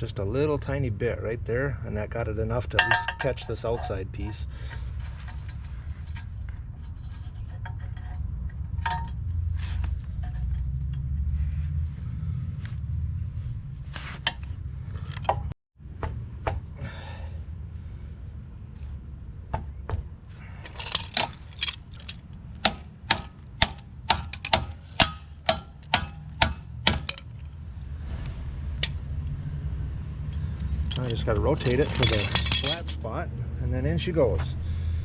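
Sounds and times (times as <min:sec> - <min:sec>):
low steady rumble: 0:00.0 - 0:35.0
hammer striking steel: 0:02.8 - 0:03.9, 0:22.6 - 0:27.4.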